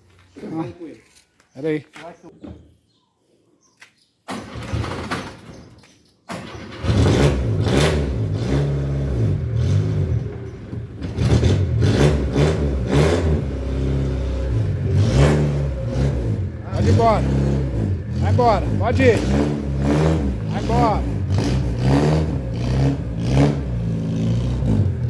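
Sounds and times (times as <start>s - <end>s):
car engine starting and revving: 6.3s - 25.0s.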